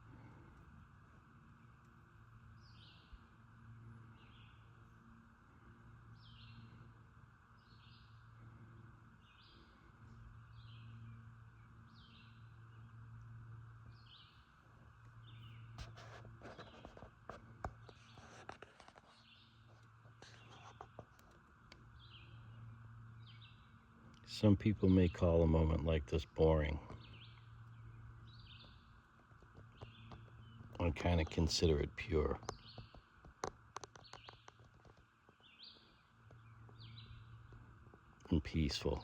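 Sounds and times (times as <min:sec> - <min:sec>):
low steady hum: 0:00.0 - 0:39.0
bird chirping: 0:04.0 - 0:04.8, 0:06.1 - 0:17.0, 0:21.8 - 0:39.0
faint clicks and knocks: 0:15.0 - 0:21.9, 0:29.1 - 0:31.4, 0:32.4 - 0:38.3.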